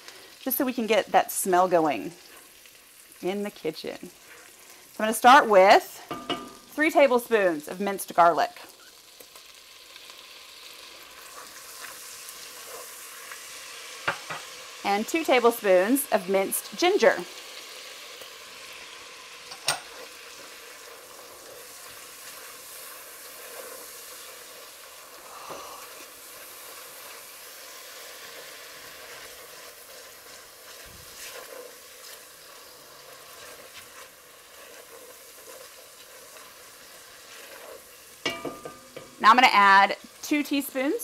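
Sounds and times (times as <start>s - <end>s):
garlic sizzling in oil: 0.0s - 41.0s
spatula stirring in pot: 10.7s - 14.6s, 19.6s - 25.2s, 25.8s - 40.1s.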